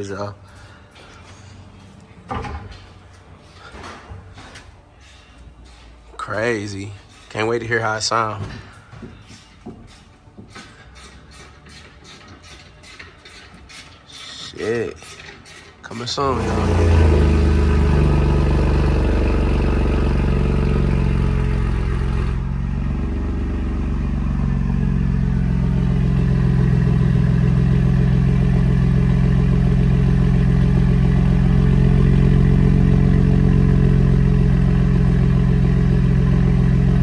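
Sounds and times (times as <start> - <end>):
loud truck engine idling: 16.3 - 37.0.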